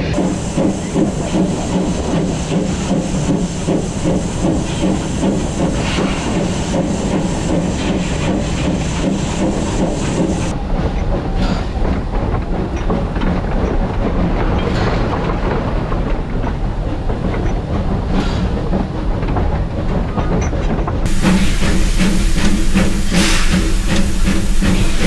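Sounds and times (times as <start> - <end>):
steam hiss: 0.0 - 10.5, 21.1 - 25.0
train wheels clattering: 21.1 - 25.0.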